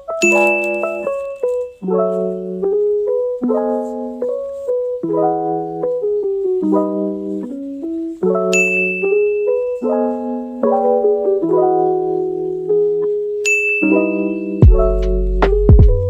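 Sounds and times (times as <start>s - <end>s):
keyboard chords: 0.0s - 16.0s
high bell-like ding: 0.2s - 1.8s, 8.5s - 9.7s, 13.4s - 14.8s.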